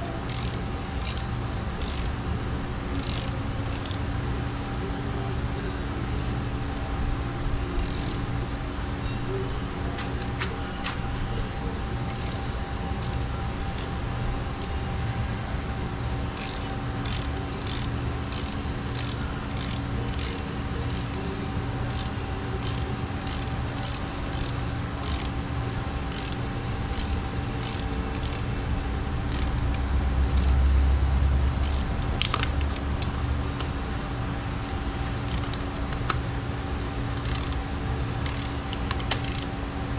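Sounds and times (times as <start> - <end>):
ratchet wrench clicking: 0.0 - 2.2, 2.9 - 4.8, 7.8 - 8.6, 11.4 - 14.8, 16.3 - 21.2, 21.8 - 28.5, 29.3 - 30.6, 31.6 - 32.9, 35.2 - 36.2, 37.1 - 37.6, 38.2 - 39.5
steady background hum: 0.0 - 39.9.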